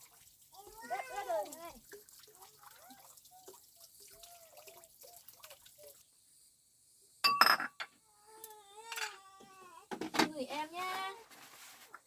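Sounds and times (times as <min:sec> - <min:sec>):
water dripping: 0:00.0 - 0:06.0.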